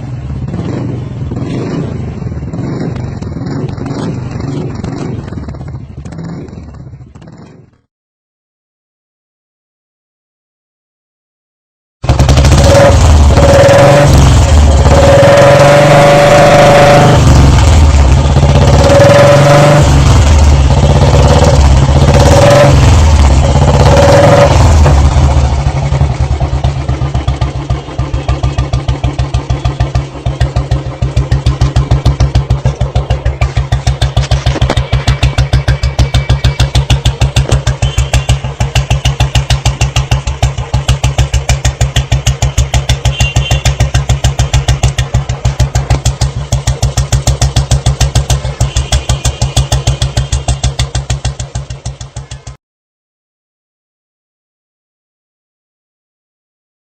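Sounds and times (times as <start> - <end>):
motorcycle engine idling: 0.0 - 7.8, 12.0 - 15.2, 17.3 - 19.0, 19.9 - 52.6
motorcycle engine revving: 0.0 - 7.9, 12.0 - 52.6.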